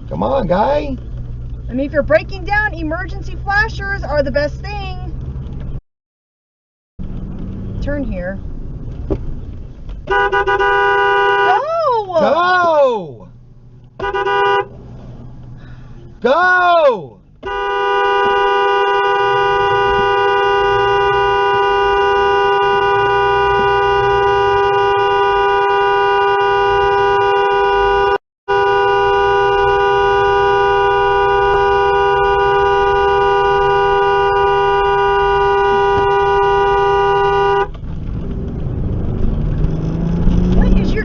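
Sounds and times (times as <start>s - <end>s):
engine and traffic noise: 0.0s - 5.8s, 7.0s - 41.0s
two-tone car horn blast: 10.0s - 11.6s, 14.0s - 14.7s, 17.4s - 37.8s.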